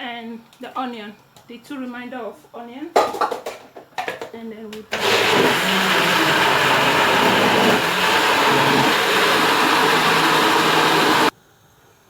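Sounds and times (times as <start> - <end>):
electric blender running: 4.9 - 11.3.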